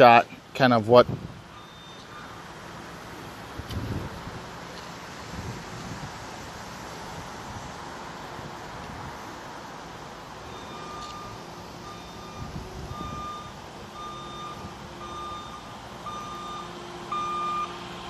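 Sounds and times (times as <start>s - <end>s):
backup alarm beeping: 1.6s - 2.1s, 10.5s - 17.7s.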